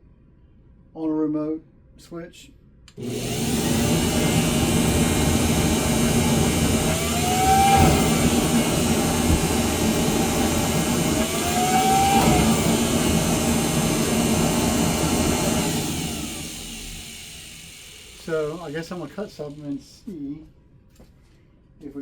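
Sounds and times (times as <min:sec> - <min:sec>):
dust collector rushing air: 0:03.0 - 0:19.5.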